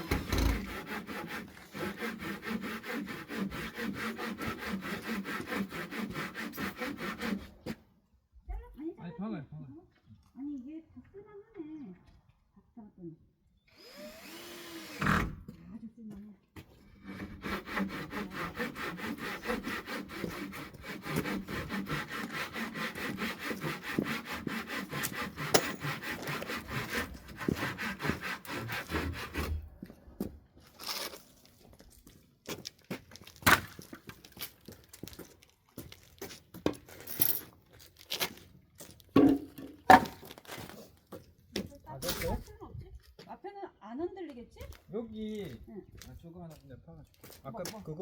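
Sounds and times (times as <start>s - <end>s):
hand saw cutting wood: 0.0s - 7.8s, 13.8s - 15.4s, 16.9s - 29.8s, 39.2s - 42.4s.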